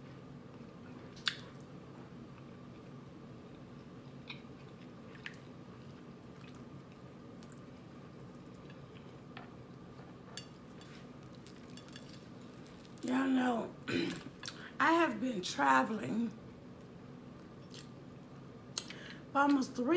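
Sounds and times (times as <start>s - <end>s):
steady low hum: 0.0s - 19.9s
mouth clicks and smacks: 1.2s - 1.6s
person chewing with wet mouth sounds: 2.3s - 9.4s, 17.6s - 18.0s.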